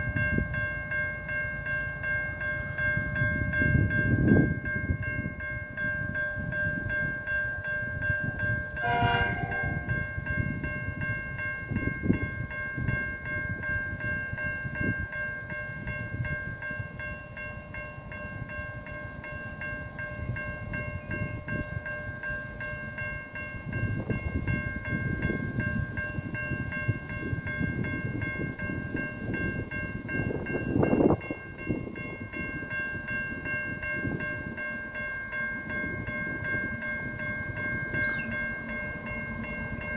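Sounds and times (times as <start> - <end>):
train rumbling with high whine: 0.0 - 39.9
train horn blast: 8.8 - 10.0.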